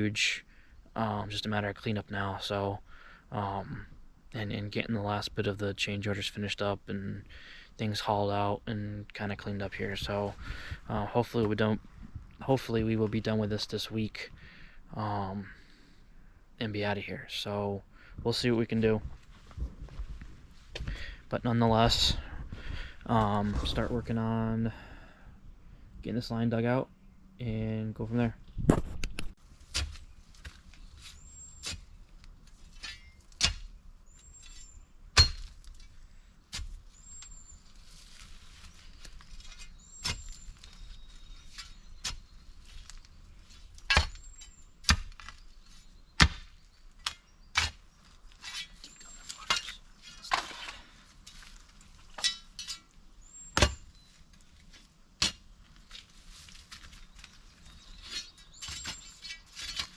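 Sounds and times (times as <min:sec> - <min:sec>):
shovel digging soil: 0:28.7 - 0:59.9
faint high chirp: 0:30.7 - 0:31.9, 0:34.0 - 0:35.4, 0:36.9 - 0:37.9, 0:38.6 - 0:43.2, 0:44.1 - 0:44.7, 0:48.8 - 0:50.2, 0:53.2 - 0:54.3, 0:57.1 - 0:59.4.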